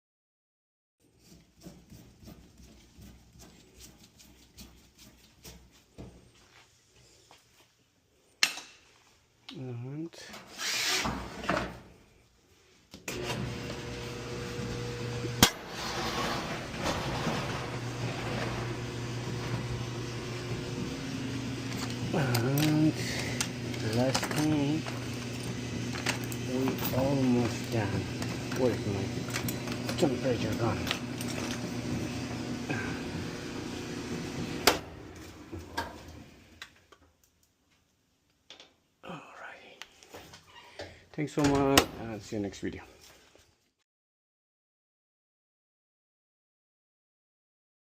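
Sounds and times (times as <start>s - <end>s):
clothes dryer humming: 13.1s - 36.6s.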